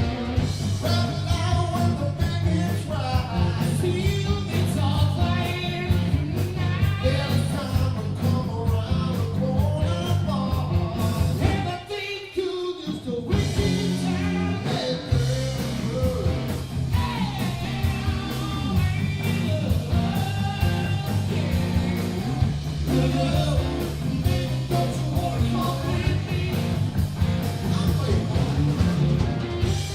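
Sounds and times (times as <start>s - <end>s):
bass guitar: 0.0s - 11.9s, 12.9s - 29.9s
electric guitar: 0.0s - 11.9s, 12.9s - 29.9s
drums: 0.0s - 29.9s
person singing: 0.8s - 26.8s.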